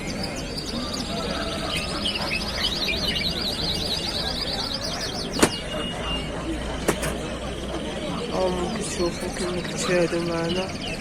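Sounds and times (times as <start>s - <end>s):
bird trilling: 0.0s - 11.0s
birds singing and chirping: 0.0s - 11.0s
market background noise: 0.0s - 11.0s
sharp click: 5.4s - 5.6s.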